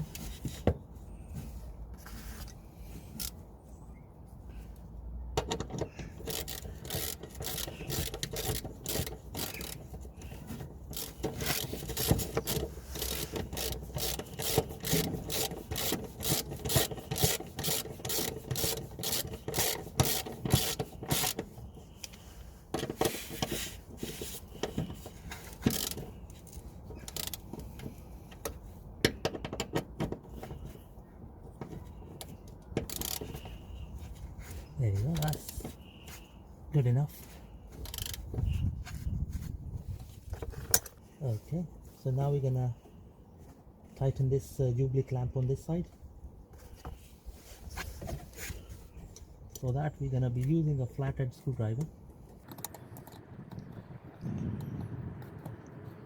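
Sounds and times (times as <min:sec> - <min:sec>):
handling noises: 0:00.0 - 0:44.2
rapid scraping and clicking: 0:05.6 - 0:28.0.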